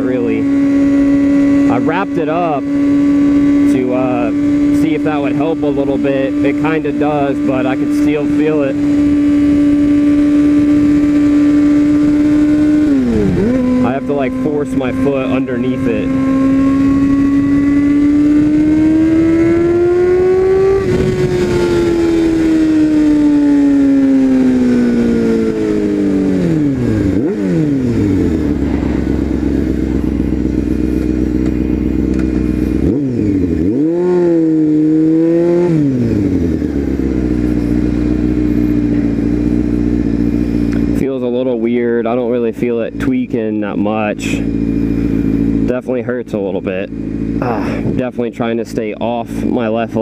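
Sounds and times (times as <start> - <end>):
motorcycle engine with loud exhaust: 0.0 - 50.0
motorcycle throttle blip: 30.9 - 32.6.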